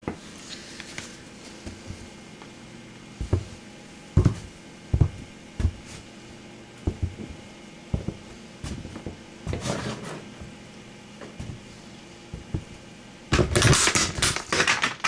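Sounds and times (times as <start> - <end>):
boots stamping on toy truck: 3.2 - 3.6, 4.2 - 6.0, 6.9 - 7.4, 8.0 - 9.8, 12.4 - 12.8.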